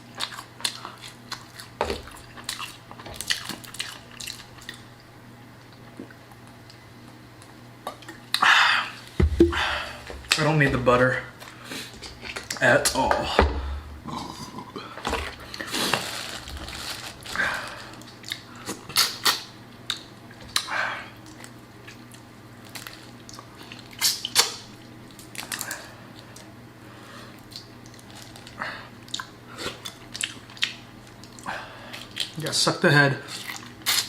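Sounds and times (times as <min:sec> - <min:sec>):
chewing and lip smacks: 0:00.0 - 0:05.0, 0:18.0 - 0:22.3, 0:23.1 - 0:26.5, 0:27.4 - 0:32.4, 0:33.3 - 0:34.0.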